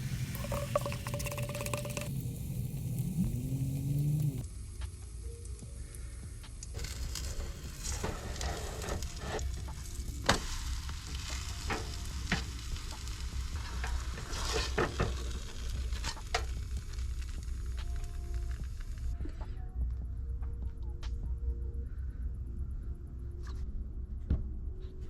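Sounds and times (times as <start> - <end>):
batter sizzling in a pan: 0.0 - 4.4, 6.7 - 19.1
low hum: 0.0 - 4.5.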